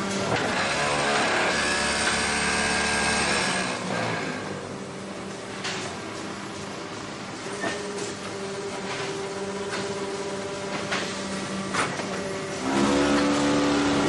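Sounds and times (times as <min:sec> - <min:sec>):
motor hum: 0:08.1 - 0:14.0
deep machine hum: 0:12.5 - 0:14.0.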